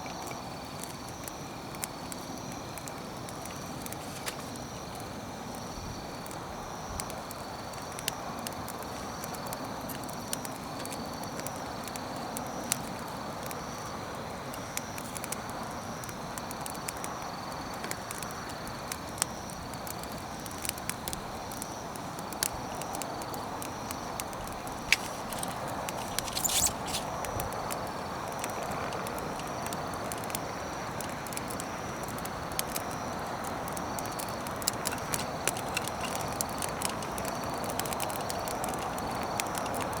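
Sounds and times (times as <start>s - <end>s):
campfire crackling: 0.0s - 40.0s
sharp fire pops: 14.7s - 40.0s.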